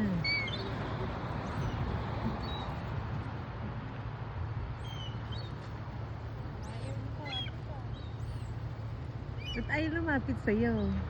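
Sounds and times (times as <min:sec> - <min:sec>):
high bird calls: 0:00.2 - 0:02.8, 0:04.8 - 0:05.7, 0:06.6 - 0:08.6, 0:09.3 - 0:09.9.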